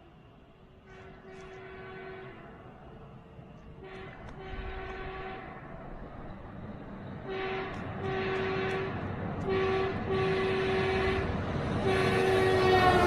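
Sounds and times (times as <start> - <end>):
air horn blasts: 0.9 - 2.4, 3.8 - 5.5, 7.3 - 13.0.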